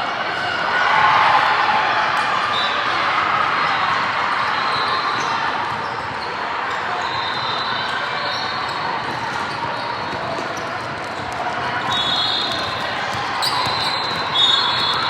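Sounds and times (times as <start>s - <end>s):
crowd noise in a gym: 0.0s - 15.0s
shoe squeaks: 7.0s - 15.0s
basketball bouncing: 9.0s - 15.0s.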